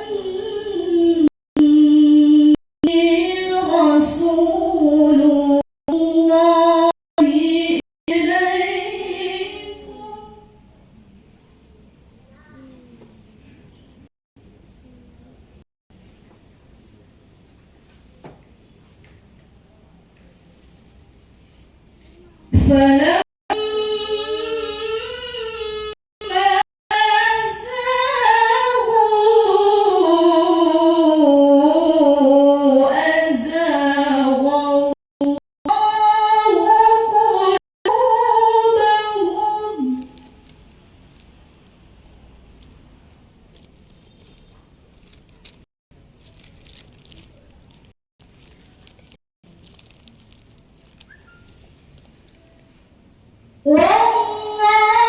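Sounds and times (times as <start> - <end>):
woman reciting melodically: 0.0 - 10.7, 22.0 - 40.5, 53.7 - 55.0
small clicks and rustles: 39.9 - 52.6
faint chirp: 51.0 - 52.7.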